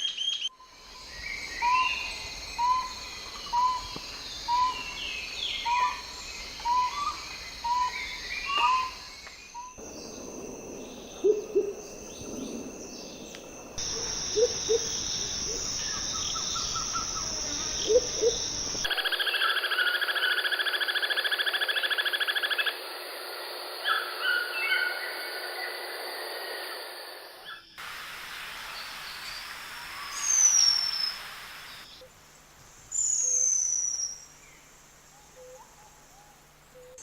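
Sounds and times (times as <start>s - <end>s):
low paired hoots: 13.8s - 20.5s.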